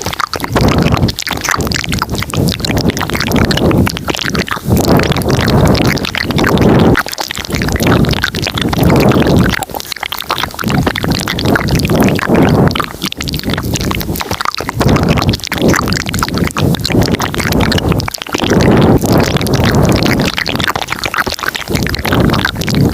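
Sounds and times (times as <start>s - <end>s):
mouth clicks and smacks: 0.0s - 22.9s.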